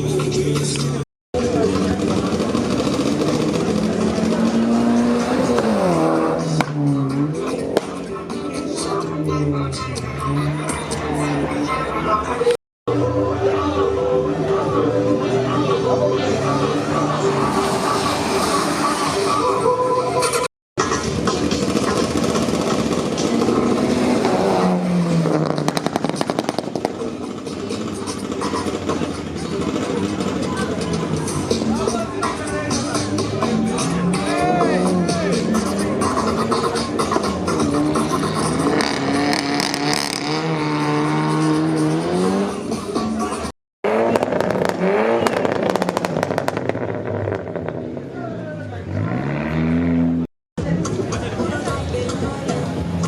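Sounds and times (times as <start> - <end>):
engine revving: 1.4 - 11.8, 20.8 - 50.3.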